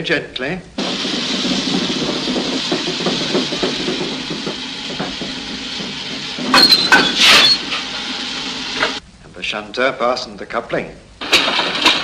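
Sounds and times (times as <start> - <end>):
locomotive chuffing: 0.8 - 9.0, 11.2 - 12.0
metallic clanks: 0.8 - 9.0
steam hissing: 0.8 - 9.0.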